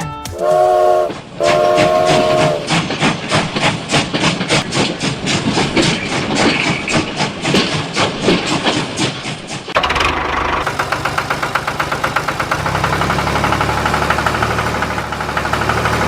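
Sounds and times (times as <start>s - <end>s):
steam train chugging: 0.2s - 16.0s
steam train whistle: 0.3s - 2.8s.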